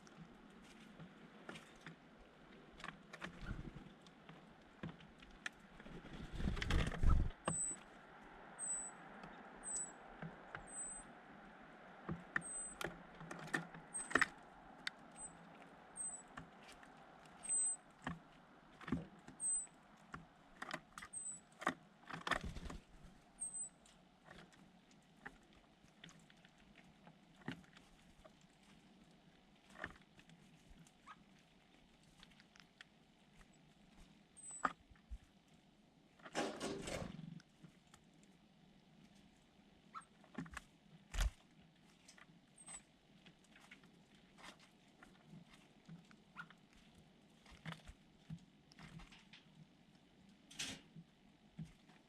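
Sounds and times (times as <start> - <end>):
wings fluttering: 5.6 - 11.1, 21.0 - 23.7
small birds chirping: 7.0 - 11.6, 12.2 - 13.2, 13.8 - 18.0, 19.2 - 19.9, 21.0 - 21.5, 22.6 - 23.9, 34.4 - 34.7.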